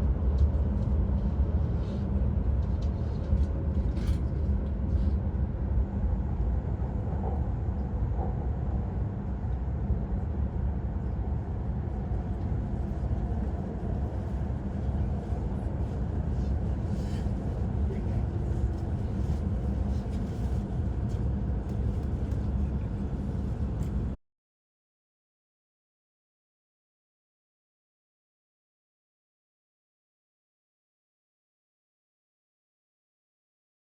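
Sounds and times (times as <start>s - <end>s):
train running rumble in cabin: 0.0s - 24.2s.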